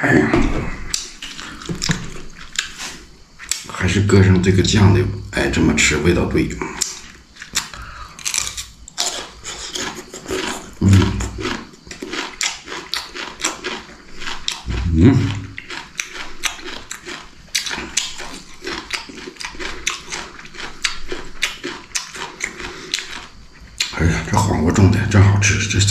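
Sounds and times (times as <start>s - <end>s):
crunchy bites and chewing: 0.3s - 4.8s, 6.6s - 24.4s
man humming with enjoyment: 10.8s - 11.4s.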